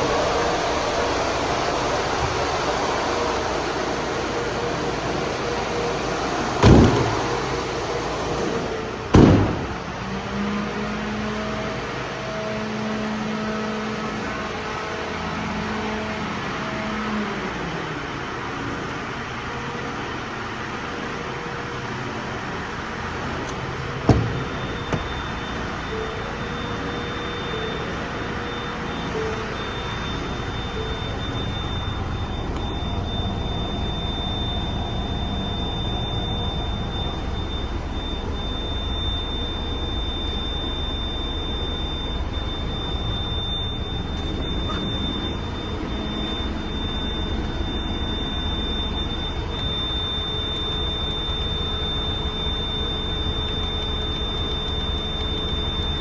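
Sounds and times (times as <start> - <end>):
van mechanical hum and hiss: 0.0 - 56.0
loud ringing thumps: 6.6 - 7.7, 9.1 - 10.1, 23.9 - 26.1
thin high steady tone: 23.4 - 56.0.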